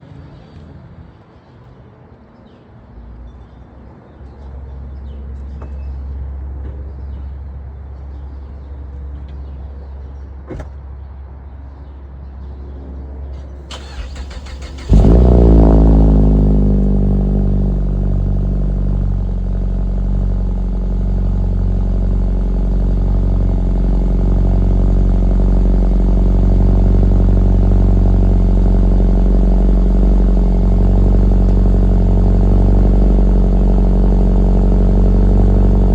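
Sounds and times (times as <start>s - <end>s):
car engine idling: 13.7s - 35.9s.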